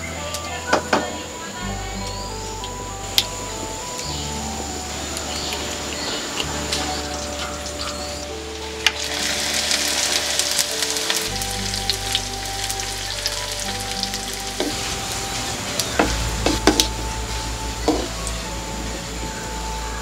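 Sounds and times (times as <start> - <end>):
food sizzling in hot oil: 5.6 - 18.4.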